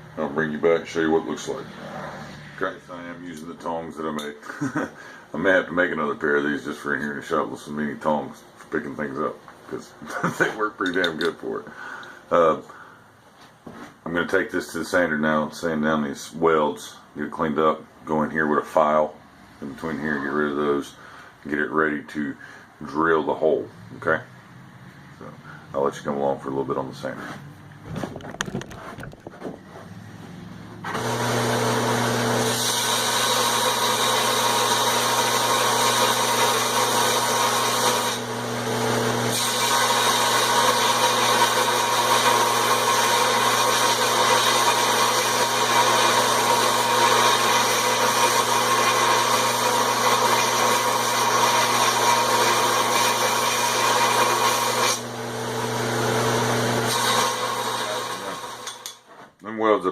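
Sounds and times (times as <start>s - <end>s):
electric sander humming: 30.9s - 58.5s.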